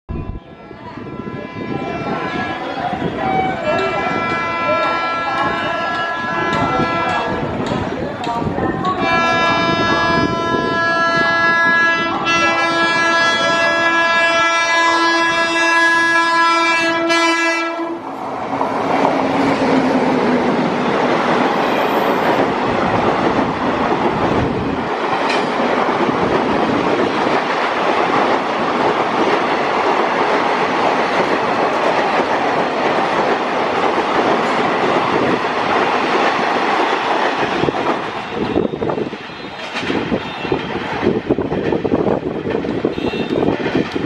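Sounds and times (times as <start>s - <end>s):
locomotive horn: 0.1s - 7.4s, 9.0s - 18.1s, 42.8s - 43.6s.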